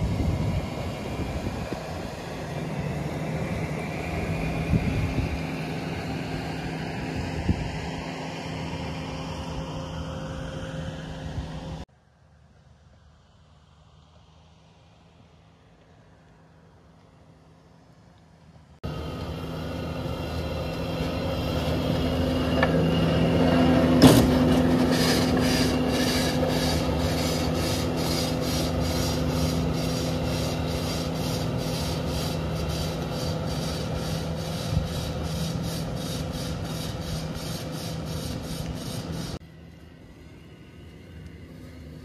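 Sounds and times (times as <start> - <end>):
loader engine under load: 0.0 - 11.8, 18.8 - 39.4
mulcher rotor grinding wood: 18.8 - 39.4.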